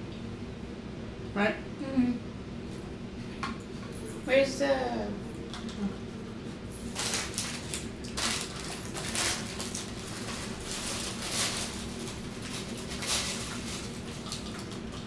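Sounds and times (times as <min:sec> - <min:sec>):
chewing with crunches: 0:11.8 - 0:15.0.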